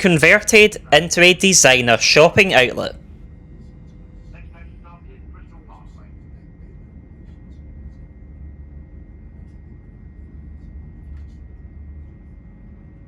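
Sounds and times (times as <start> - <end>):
faint steady whine: 0.0 - 13.0
train interior rumble: 4.2 - 13.0.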